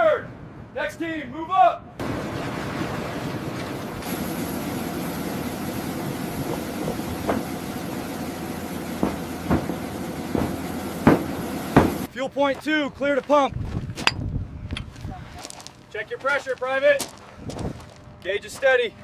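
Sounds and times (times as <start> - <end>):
heavy machinery rumbling: 2.0 - 12.1
sharp knocks or clanks: 7.2 - 7.5, 9.0 - 12.1.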